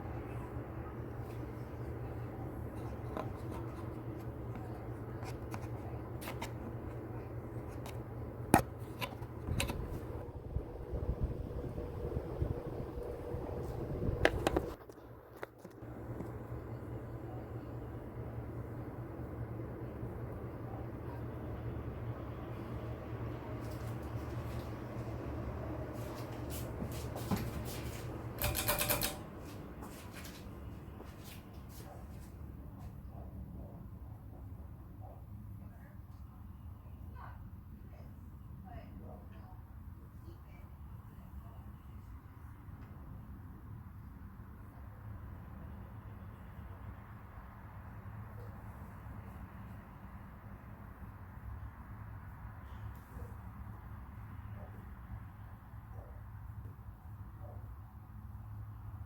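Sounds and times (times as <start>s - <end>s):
ceiling fan humming: 0.0s - 57.4s
rattling clicks: 28.4s - 29.2s.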